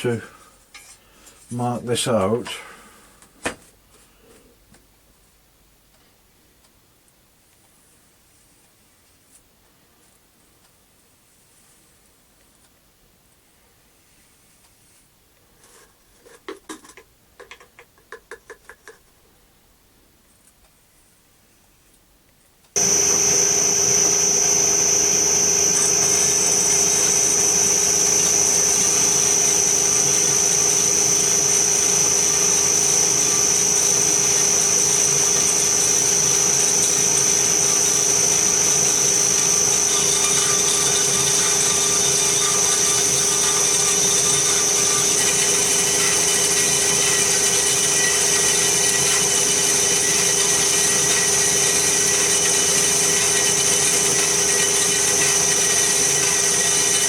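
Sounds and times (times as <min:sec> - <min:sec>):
higher tones from cutting metal: 0:22.8 - 0:57.0
power tool motor whining: 0:22.8 - 0:57.0.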